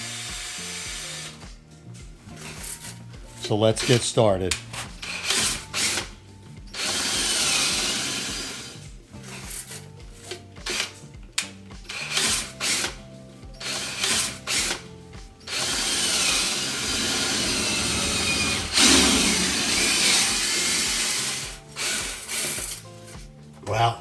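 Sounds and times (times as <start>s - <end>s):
power drill spinning brush in metal duct: 4.6s - 9.8s, 13.6s - 22.8s.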